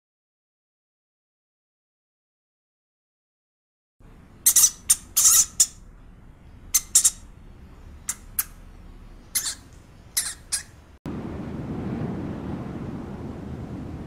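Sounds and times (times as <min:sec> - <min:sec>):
rat squeaking: 0:04.4 - 0:05.9, 0:06.7 - 0:07.4, 0:08.0 - 0:11.0.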